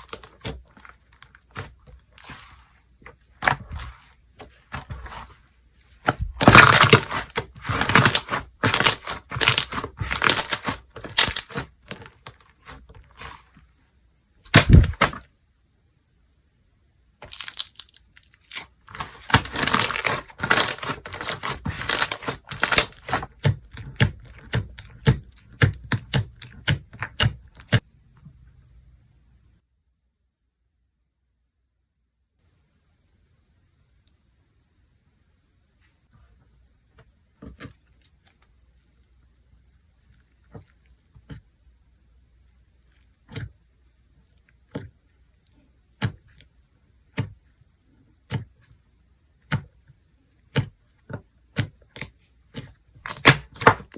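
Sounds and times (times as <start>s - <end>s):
slime crackling and popping: 6.1s - 13.4s, 17.2s - 27.8s.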